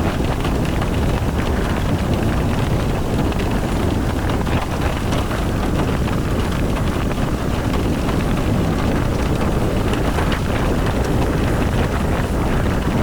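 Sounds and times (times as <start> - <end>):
road and wind noise rumble: 0.0 - 13.0.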